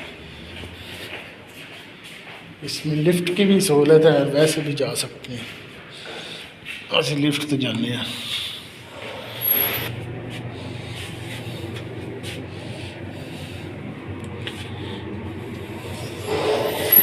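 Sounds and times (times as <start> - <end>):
elevator mechanical hum: 0.0 - 6.8, 7.9 - 17.0
light rubbing: 8.9 - 17.0.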